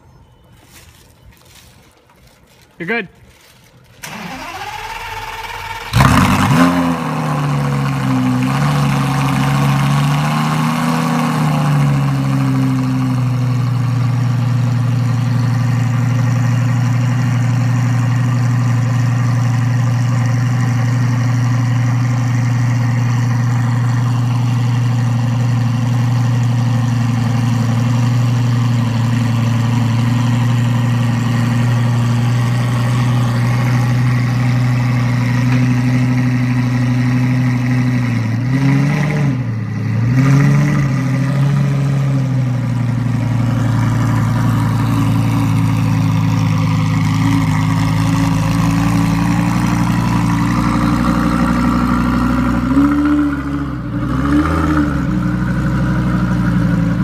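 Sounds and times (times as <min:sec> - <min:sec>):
car engine starting and idling: 0:03.8 - 0:57.0
starter motor cranking: 0:04.0 - 0:06.4.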